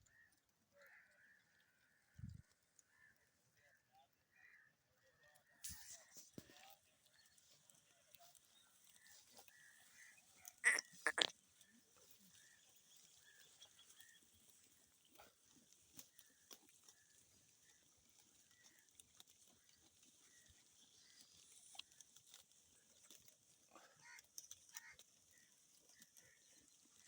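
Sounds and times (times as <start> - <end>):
goat calling harshly: 10.6 - 11.3.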